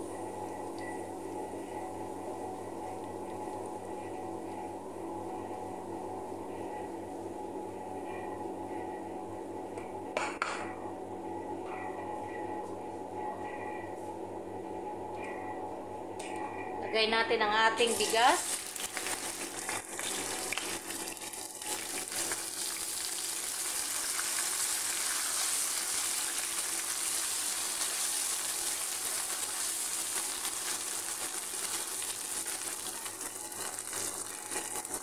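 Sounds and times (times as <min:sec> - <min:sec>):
rice sizzling in a frying pan: 0:17.8 - 0:35.0.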